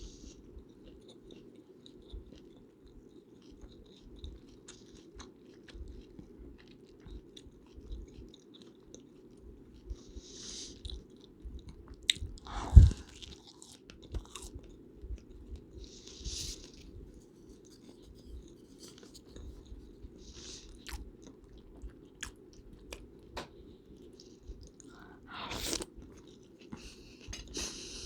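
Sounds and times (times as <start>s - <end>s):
chewing and mouth sounds: 0.2s - 28.0s.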